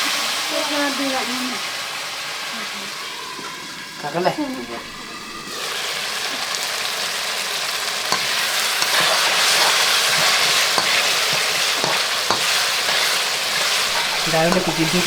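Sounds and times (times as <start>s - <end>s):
food sizzling in hot oil: 0.0s - 15.0s
spoon knocking against pan: 8.1s - 15.0s.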